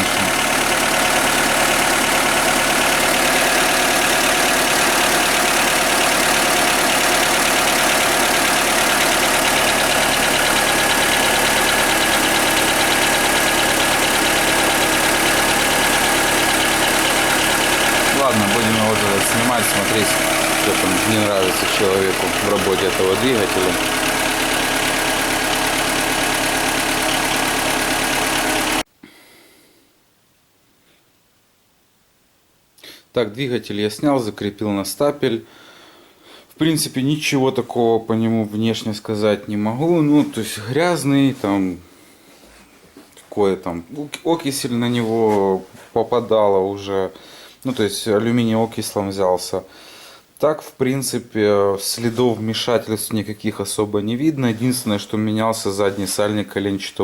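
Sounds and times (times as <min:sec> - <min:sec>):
light engine knock: 0:00.0 - 0:28.8
car engine idling: 0:00.0 - 0:28.9.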